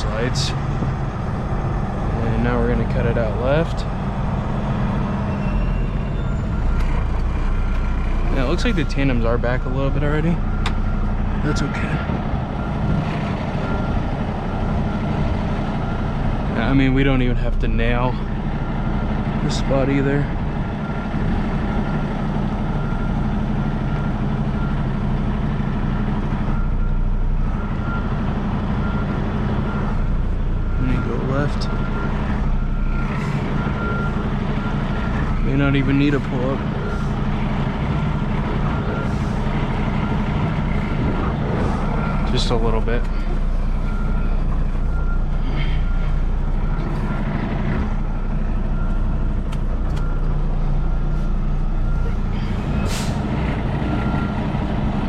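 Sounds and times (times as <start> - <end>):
truck diesel engine idling: 0.0 - 55.0
backup alarm beeping: 37.8 - 47.3.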